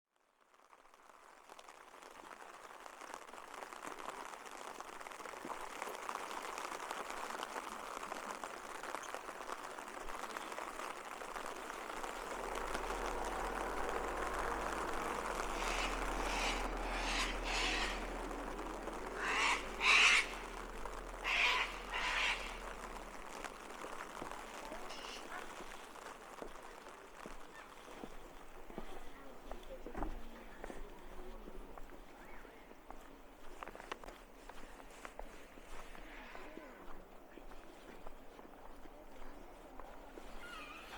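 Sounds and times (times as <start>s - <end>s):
rain hissing: 0.9s - 28.7s
bird giving harsh calls: 14.2s - 23.8s, 24.7s - 25.4s.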